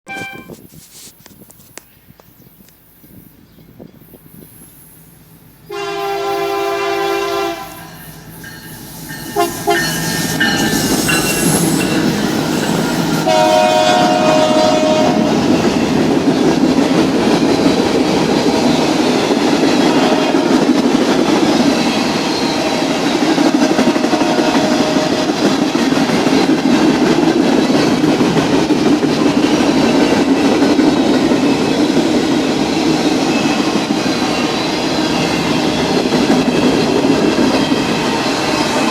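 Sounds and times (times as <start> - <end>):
train horn blasts: 0.1 - 0.6, 5.7 - 8.1, 9.2 - 12.0, 13.0 - 15.6, 24.1 - 25.2
train cars rumbling past: 3.0 - 38.9.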